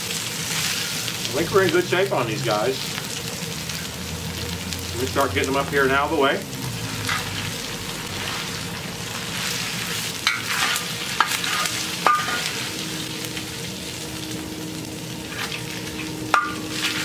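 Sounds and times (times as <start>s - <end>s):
hash browns sizzling: 0.0s - 17.0s
metal spatula scraping steel: 7.0s - 7.4s, 9.4s - 13.1s, 15.2s - 17.0s.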